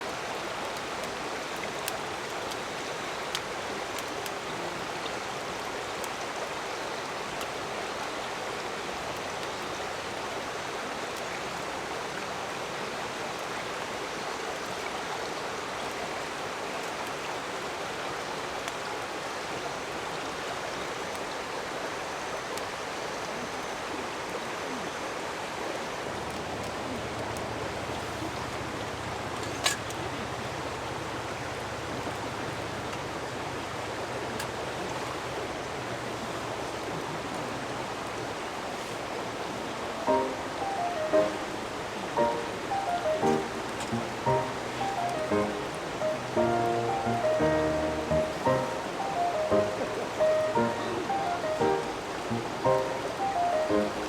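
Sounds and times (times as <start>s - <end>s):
river rushing: 37.7s - 54.0s
faint ticks: 42.2s - 54.0s.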